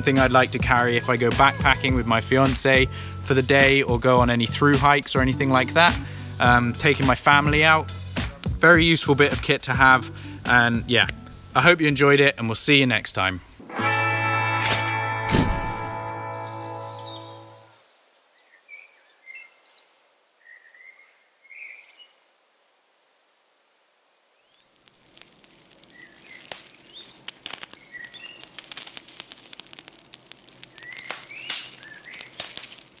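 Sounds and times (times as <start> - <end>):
crackling hiss with clicks: 0.0 - 13.7, 22.5 - 33.0
small birds chirping: 16.3 - 22.2, 24.4 - 33.0.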